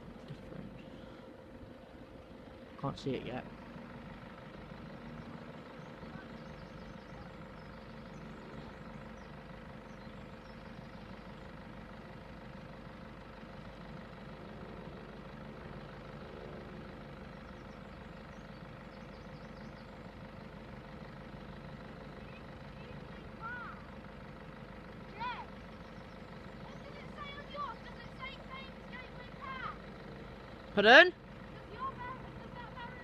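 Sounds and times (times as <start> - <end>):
vehicle engine idling: 0.0 - 33.0.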